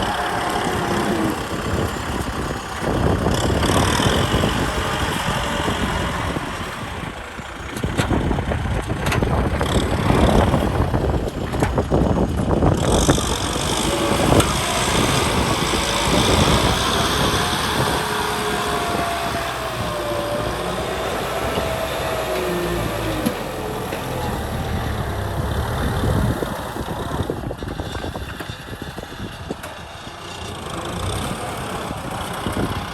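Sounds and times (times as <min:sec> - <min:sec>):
tractor diesel engine running: 0:00.0 - 0:32.9
knocks and clatter: 0:07.6 - 0:31.6.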